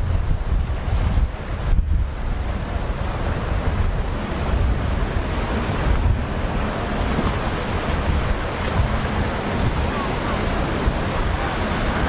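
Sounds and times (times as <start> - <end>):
rough surf rushing: 0.0 - 12.0
wind buffeting microphone: 0.0 - 12.0.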